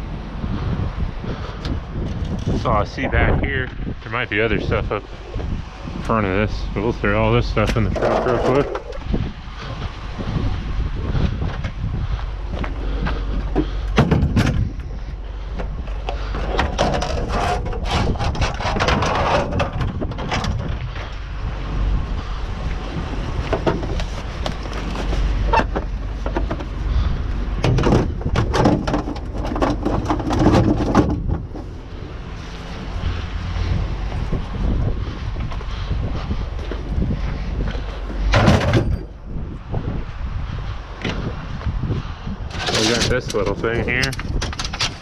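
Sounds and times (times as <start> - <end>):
wind on microphone: 0.0 - 45.0
scrap metal clanking: 7.6 - 9.0, 15.5 - 21.2, 23.4 - 31.8, 42.5 - 45.0.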